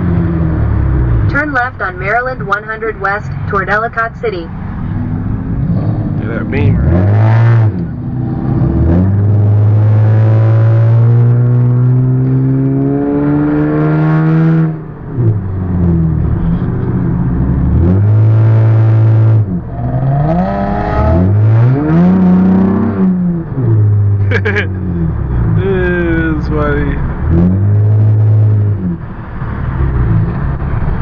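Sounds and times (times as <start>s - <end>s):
car engine accelerating: 4.5s - 31.0s.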